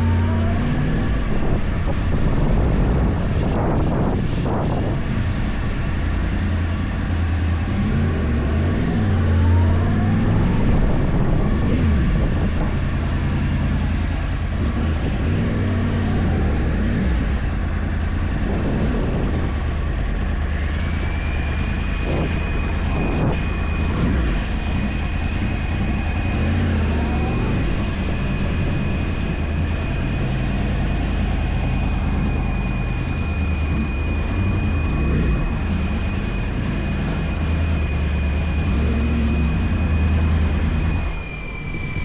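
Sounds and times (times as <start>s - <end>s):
motorcycle engine revving: 0.0s - 41.2s
thin high whistle: 40.9s - 42.0s.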